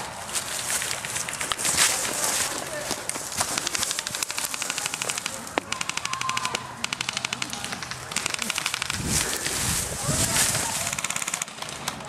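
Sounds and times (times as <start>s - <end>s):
airsoft rifle firing bursts: 3.4s - 9.6s, 10.7s - 11.9s.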